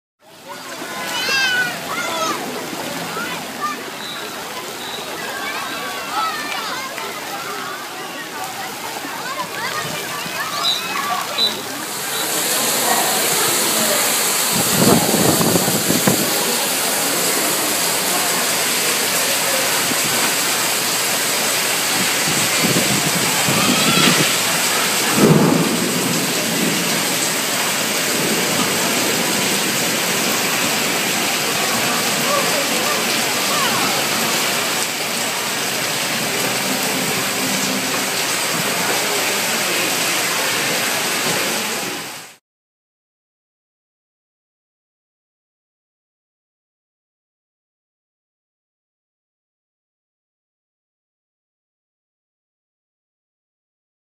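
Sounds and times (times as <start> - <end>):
heavy rain on pavement: 0.2 - 42.4
low rumble: 35.5 - 39.5.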